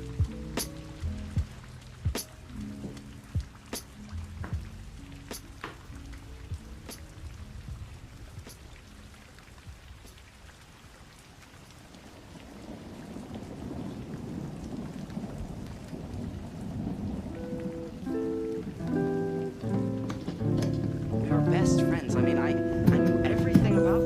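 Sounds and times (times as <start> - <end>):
rain hiss: 0.0 - 24.0
thunder rumble: 11.9 - 24.0
music notes: 17.4 - 24.0.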